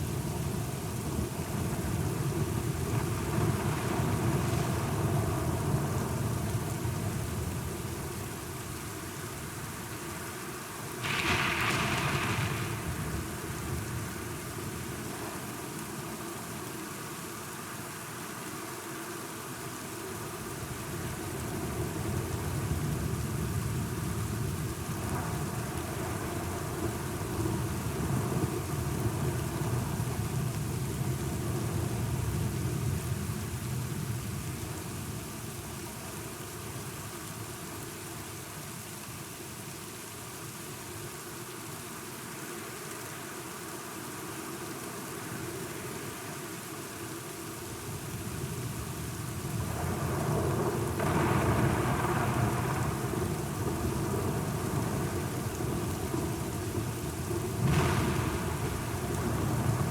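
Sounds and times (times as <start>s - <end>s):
steady rain: 0.0s - 59.9s
low rolling thunder: 11.0s - 15.1s, 48.2s - 59.9s.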